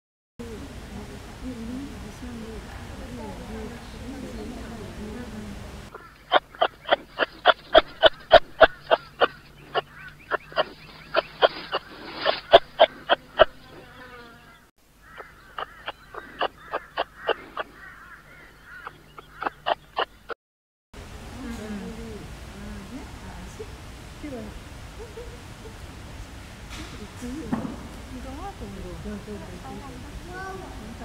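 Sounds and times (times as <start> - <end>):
short sharp animal calls: 5.9 - 14.2, 15.0 - 20.4.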